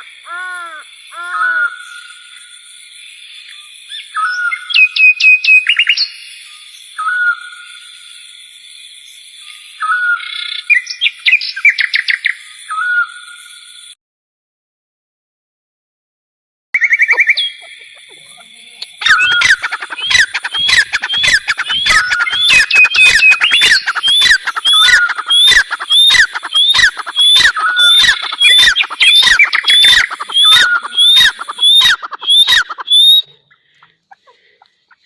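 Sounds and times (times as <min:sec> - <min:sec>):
bird calling loudly: 0:16.8 - 0:35.0.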